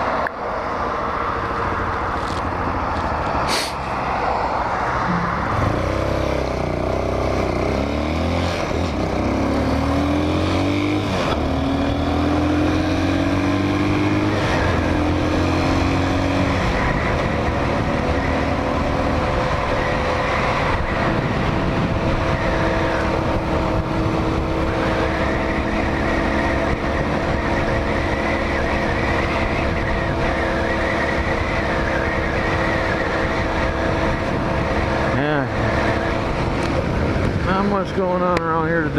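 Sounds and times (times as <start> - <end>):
motorcycle engine revving through gears: 5.1 - 38.9
wind noise on microphone: 11.0 - 38.9.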